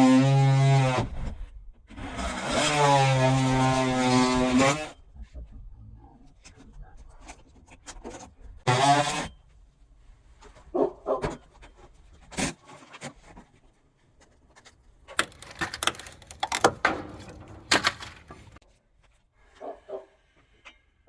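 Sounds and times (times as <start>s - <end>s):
scraping and clattering: 15.2s - 18.6s.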